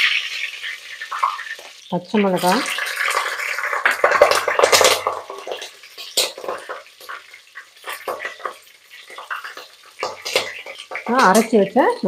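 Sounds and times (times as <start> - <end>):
leaves sizzling in hot oil: 0.0 - 12.0
spatula scraping and knocking pot: 3.9 - 11.9.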